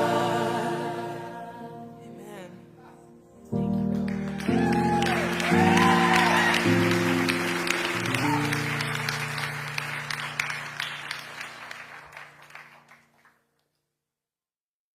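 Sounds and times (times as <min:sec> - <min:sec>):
audience applause: 0:03.7 - 0:13.4.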